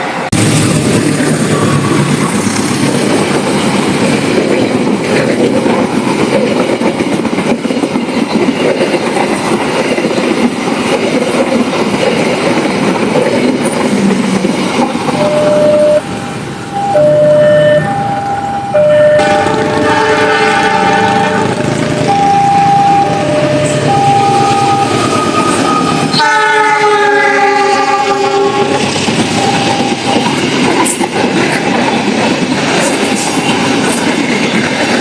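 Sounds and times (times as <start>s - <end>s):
train wheels on rails: 0.0s - 35.0s
two-tone train horn: 16.8s - 28.8s
multi-tone horn: 18.9s - 22.2s, 22.8s - 28.8s.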